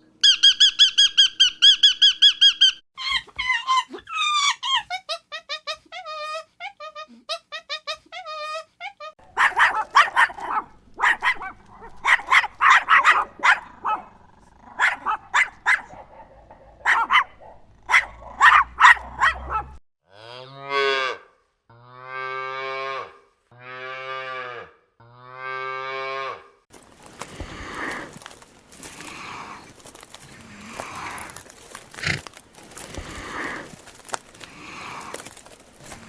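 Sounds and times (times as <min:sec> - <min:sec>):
dog barking: 0:09.2 - 0:14.1, 0:14.8 - 0:19.8
rustling: 0:26.7 - 0:36.0.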